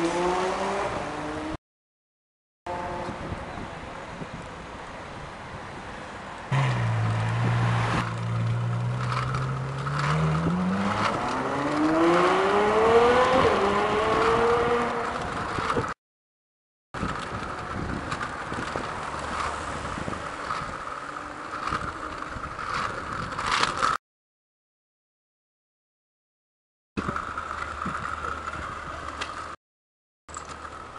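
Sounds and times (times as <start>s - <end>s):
car engine revving: 0.0s - 1.6s, 6.5s - 15.6s
rough engine and road noise: 0.0s - 1.6s, 2.7s - 16.0s, 17.0s - 24.0s, 27.0s - 29.6s, 30.3s - 30.9s.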